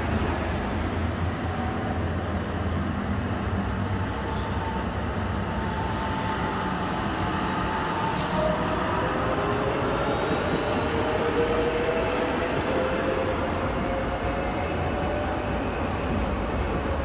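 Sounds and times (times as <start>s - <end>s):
tram rumbling on rails: 0.0s - 17.0s.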